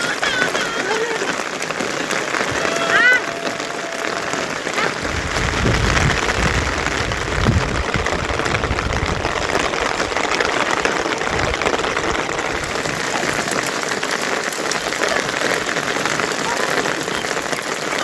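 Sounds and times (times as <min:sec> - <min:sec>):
heavy rain hissing: 0:00.0 - 0:18.0
low rumble: 0:03.2 - 0:13.0.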